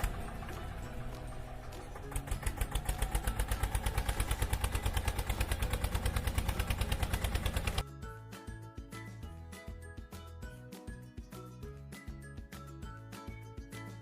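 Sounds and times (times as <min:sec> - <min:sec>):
tractor engine chugging: 0:00.0 - 0:07.8.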